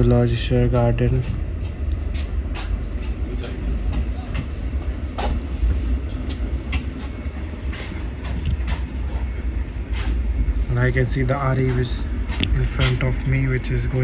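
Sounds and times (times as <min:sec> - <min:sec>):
train rumble: 0:00.0 - 0:14.0
wheels clacking over rail joints: 0:00.0 - 0:14.0.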